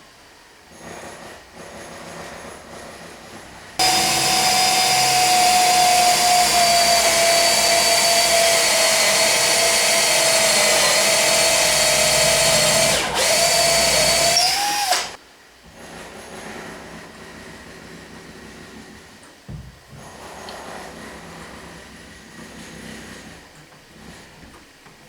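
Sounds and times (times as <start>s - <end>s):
power tool whining: 3.8s - 15.2s.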